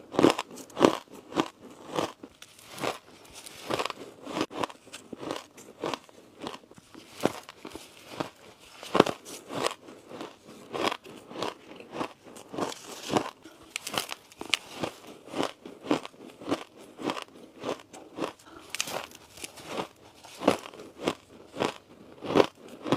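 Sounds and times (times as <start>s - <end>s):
ice being chewed: 0.0s - 22.9s.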